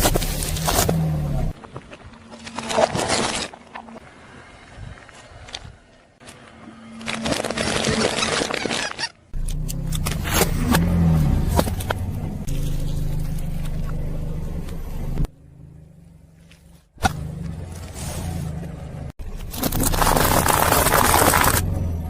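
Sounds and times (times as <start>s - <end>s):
tyre crushing objects: 0.0s - 3.6s, 19.3s - 21.7s
car engine running: 9.4s - 22.0s.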